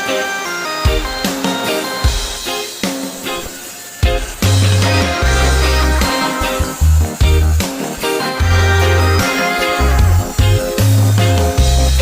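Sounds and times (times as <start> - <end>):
funk guitar: 0.0 - 12.0
heavy bass line: 4.4 - 12.0.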